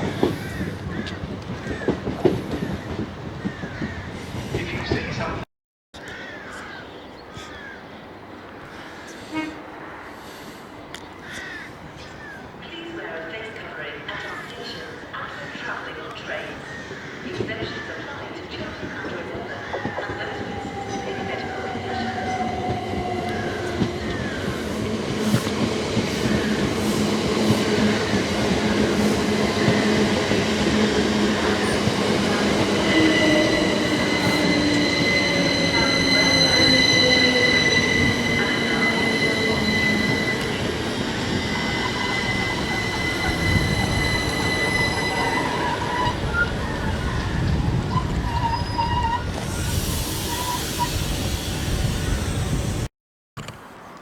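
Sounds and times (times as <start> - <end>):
passenger train passing: 0.0 - 5.4, 7.8 - 52.9
high steady wheel squeal: 19.5 - 52.9.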